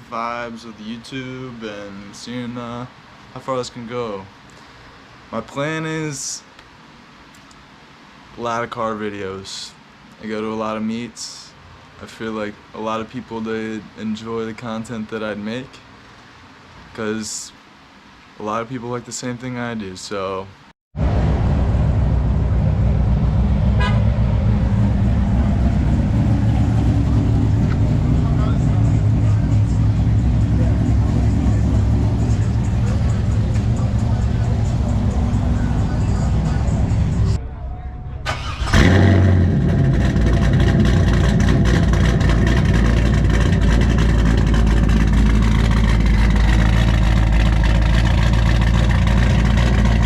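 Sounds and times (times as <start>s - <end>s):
car engine rumbling: 21.0s - 50.0s
short high horn toot: 23.7s - 24.1s.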